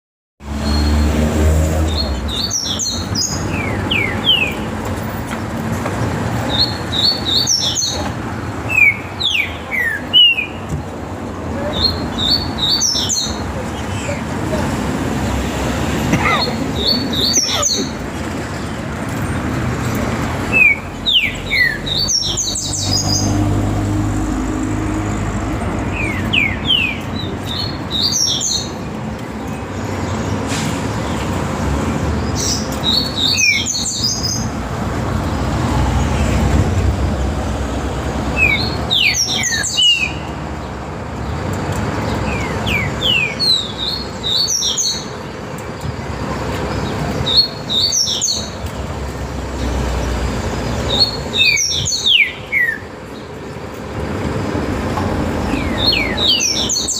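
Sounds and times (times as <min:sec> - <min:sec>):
bird singing phrased song: 0:01.8 - 0:04.8, 0:06.4 - 0:10.8, 0:11.7 - 0:14.3, 0:15.2 - 0:18.8, 0:19.9 - 0:23.6, 0:25.8 - 0:31.3, 0:32.2 - 0:34.6, 0:38.3 - 0:53.7, 0:55.4 - 0:56.9.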